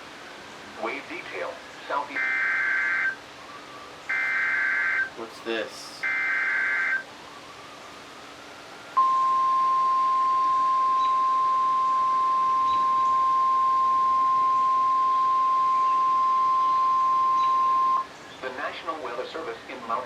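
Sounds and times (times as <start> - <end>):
steady alarm beep: 2.2 - 3.2, 4.1 - 5.1, 6.0 - 7.0, 9.0 - 18.1.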